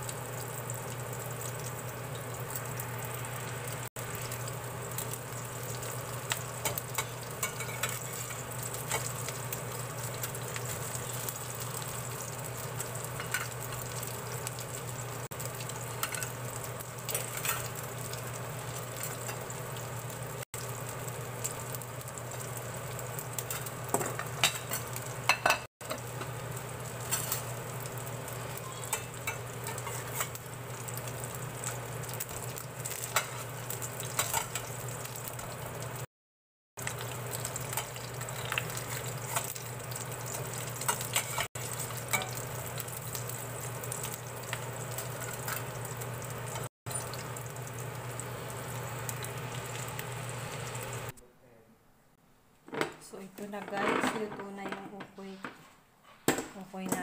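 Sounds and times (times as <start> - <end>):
fritters sizzling in pan: 0.0 - 36.1, 36.8 - 51.1
spatula scraping and clicking pan: 6.3 - 9.4, 13.2 - 13.9, 17.1 - 17.8, 28.7 - 30.4, 32.9 - 34.7, 37.6 - 39.7, 40.6 - 42.4.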